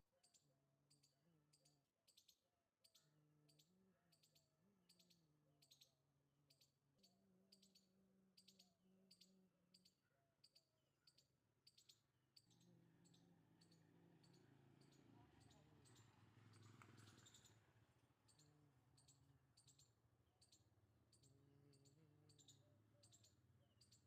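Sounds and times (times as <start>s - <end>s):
faint high chirps: 6.5s - 24.0s.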